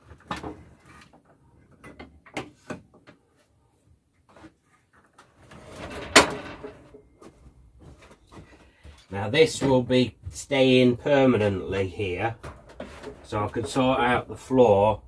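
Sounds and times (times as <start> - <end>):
loud clunk: 5.8 - 6.9.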